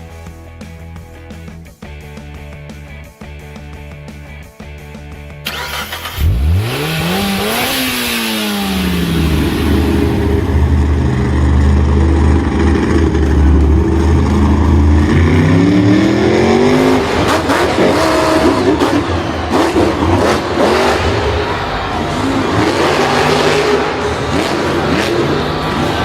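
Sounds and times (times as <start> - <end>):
vehicle engine revving: 5.4 - 26.0.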